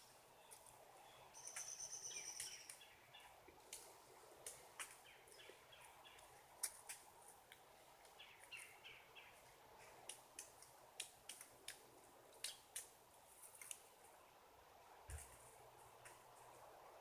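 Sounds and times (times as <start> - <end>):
high bird chirps: 1.4 - 2.9.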